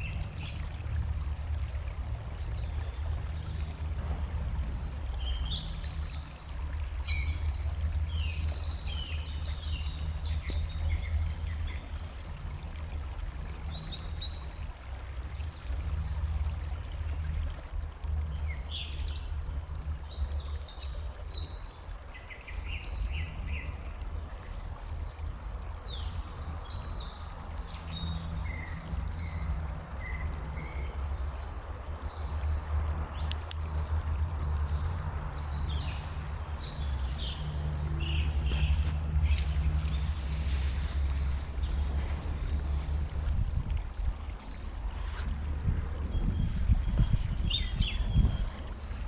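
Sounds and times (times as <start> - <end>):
small birds chirping: 0.0 - 3.7, 30.6 - 43.4, 45.9 - 49.0
steady low rumble: 32.6 - 49.0.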